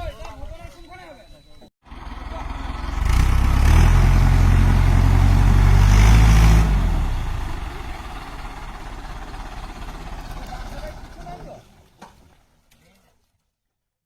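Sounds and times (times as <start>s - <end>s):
tractor engine running under load: 1.8s - 11.5s.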